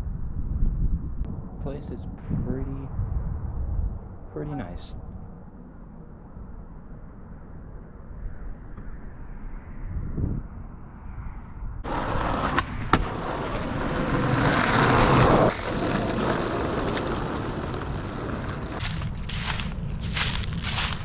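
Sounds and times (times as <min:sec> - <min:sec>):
skateboard wheels rolling on pavement: 0:11.8 - 0:21.0
skateboard clacks: 0:11.9 - 0:18.8.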